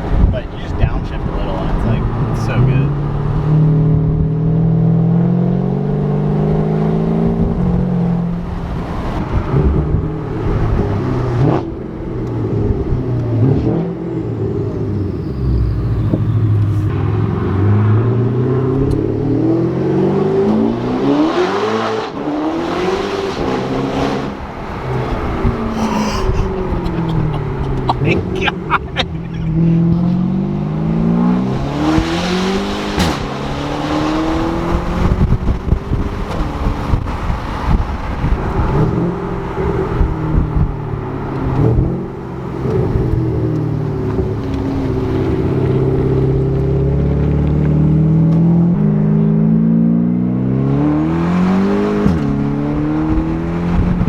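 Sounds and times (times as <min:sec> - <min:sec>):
car engine accelerating hard: 0:00.0 - 0:54.0.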